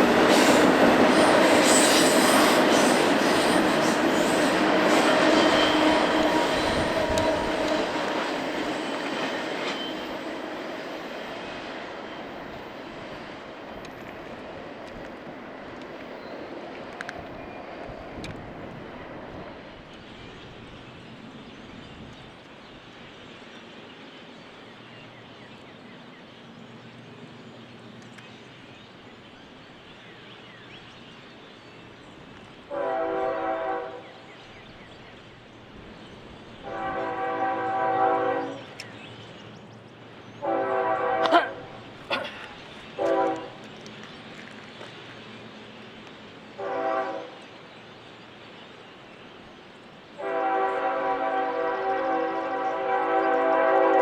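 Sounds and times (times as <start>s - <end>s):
train rumble: 0.0s - 54.0s
locomotive air horn blasts: 32.7s - 34.0s, 36.6s - 38.6s, 40.4s - 41.8s, 43.0s - 43.6s, 46.6s - 47.4s, 50.2s - 54.0s.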